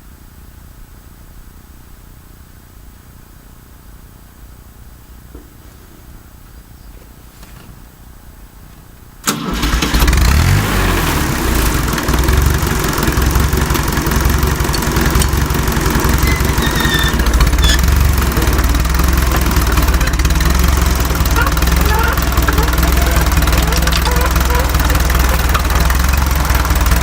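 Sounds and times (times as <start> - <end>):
tractor engine starting: 9.2 - 27.0.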